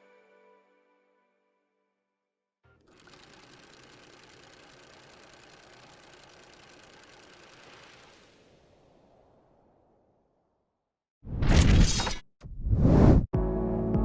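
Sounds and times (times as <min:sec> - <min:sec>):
small motor running: 0:02.8 - 0:08.3.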